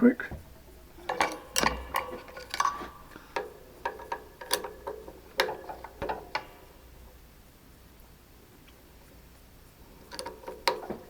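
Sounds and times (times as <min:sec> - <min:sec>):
sharp clicks and knocks: 0:00.2 - 0:07.3, 0:10.0 - 0:11.0.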